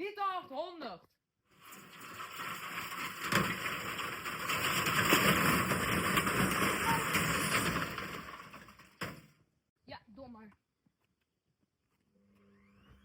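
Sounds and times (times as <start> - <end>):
washing machine running: 1.6 - 9.2.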